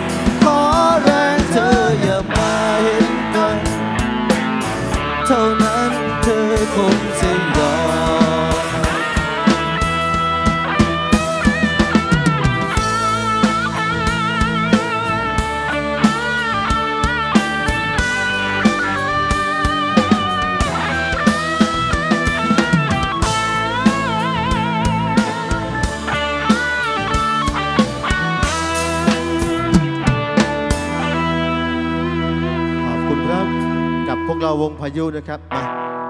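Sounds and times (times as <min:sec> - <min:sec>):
drum kit beat: 0:00.0 - 0:32.1
sustained low backing: 0:00.0 - 0:35.5
lead electric guitar solo: 0:00.0 - 0:36.0.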